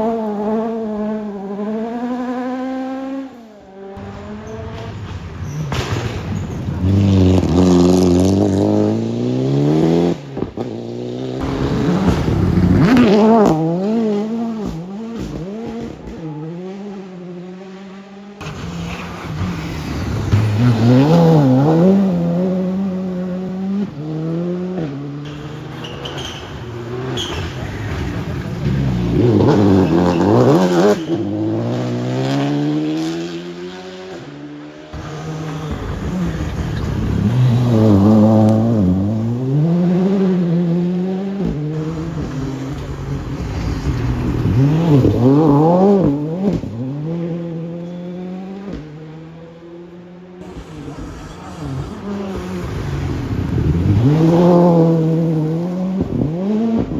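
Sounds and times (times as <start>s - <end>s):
rally cars revving past: 0.0s - 56.9s.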